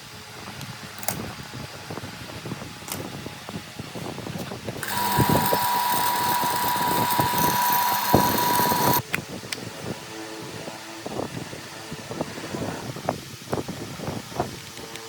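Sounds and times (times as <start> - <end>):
small electric motor whining: 4.8 - 9.0.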